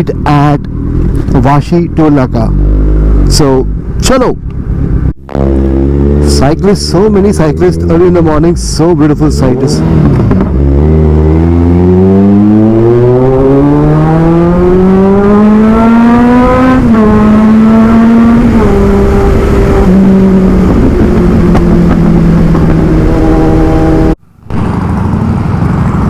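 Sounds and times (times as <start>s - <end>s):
motorcycle engine revving: 0.0s - 4.0s, 4.6s - 26.0s
wind noise: 0.0s - 26.0s.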